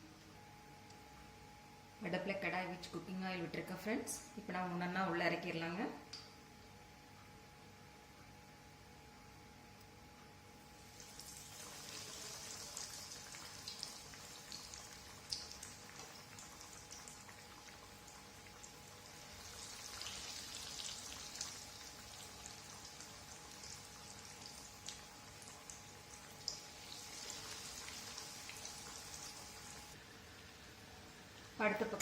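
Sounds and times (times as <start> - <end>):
chicken frying in oil: 10.8 - 32.0.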